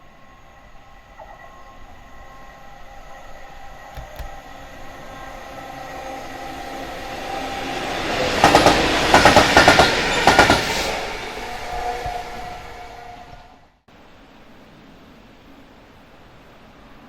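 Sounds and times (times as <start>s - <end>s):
train wheels clattering over rail joints: 8.4s - 10.8s.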